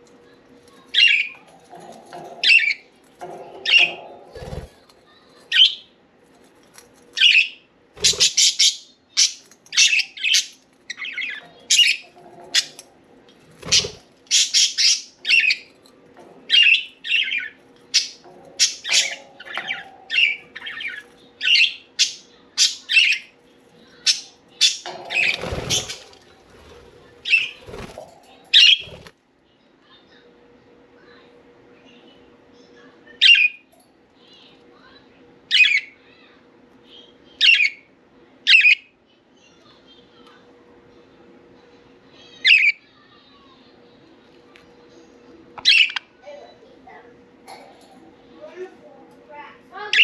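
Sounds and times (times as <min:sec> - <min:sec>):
budgerigars chirping: 0:07.2 - 0:12.8.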